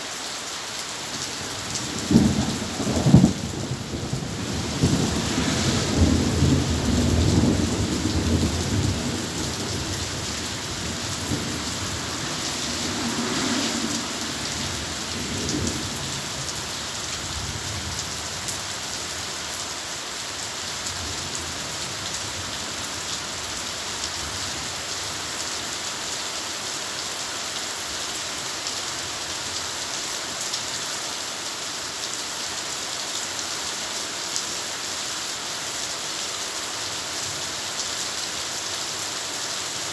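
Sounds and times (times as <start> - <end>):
heavy rain falling: 0.0 - 39.9
thunder rumbling: 1.5 - 18.6.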